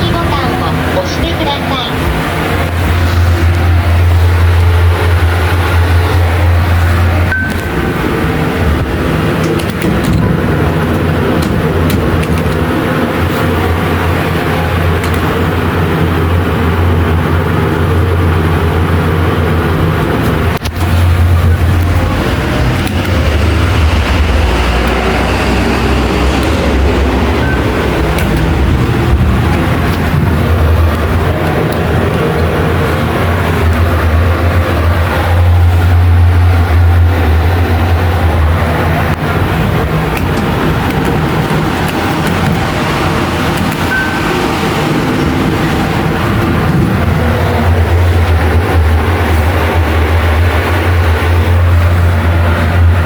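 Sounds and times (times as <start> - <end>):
rushing air noise: 0.0 - 53.0
ventilation fan humming: 0.0 - 53.0.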